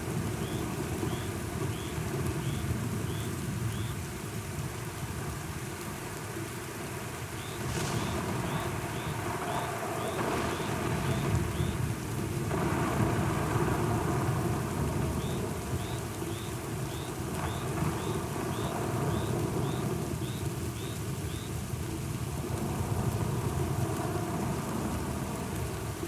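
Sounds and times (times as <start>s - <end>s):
steady rain: 0.0s - 26.0s
thunder rumbling: 7.3s - 21.4s.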